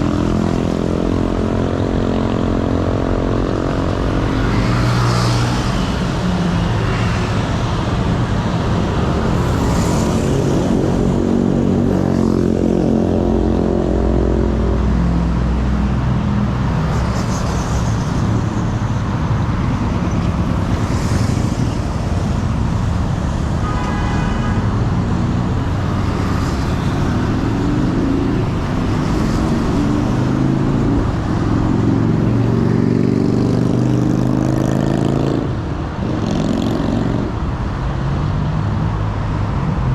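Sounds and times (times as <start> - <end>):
car and motorcycle engines: 0.0 - 39.9
road noise: 0.0 - 39.9.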